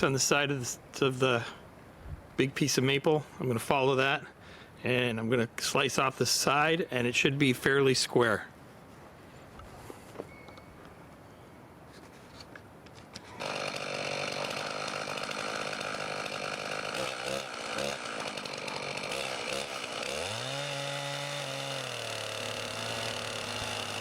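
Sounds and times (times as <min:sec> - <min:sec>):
chainsaw cutting log: 0:13.2 - 0:24.0.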